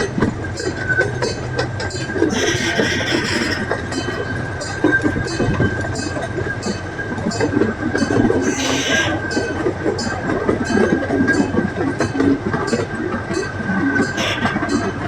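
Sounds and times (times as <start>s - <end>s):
wheels clicking over rail joints: 0.0s - 15.0s.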